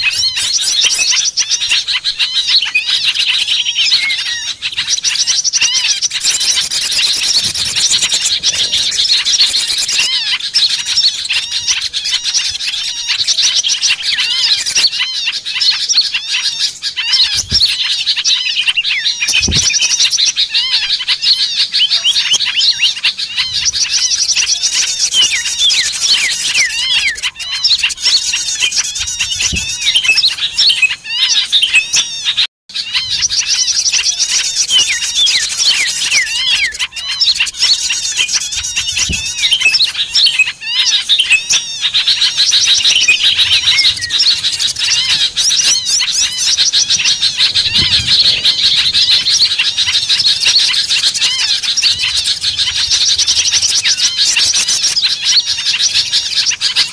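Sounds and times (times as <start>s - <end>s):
songbirds chirping and twittering: 0.0s - 56.9s.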